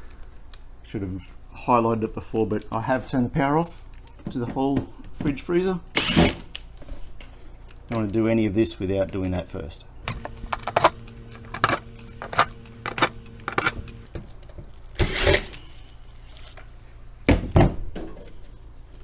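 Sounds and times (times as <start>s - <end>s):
metal rattles: 10.1s - 14.1s
spanner clicking on metal: 10.1s - 14.1s.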